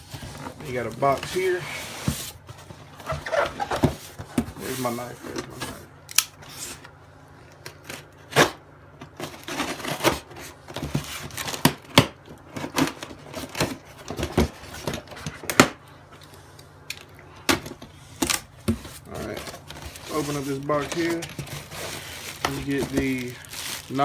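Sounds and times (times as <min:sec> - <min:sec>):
cardboard rustling: 0:00.0 - 0:05.9, 0:17.7 - 0:24.0.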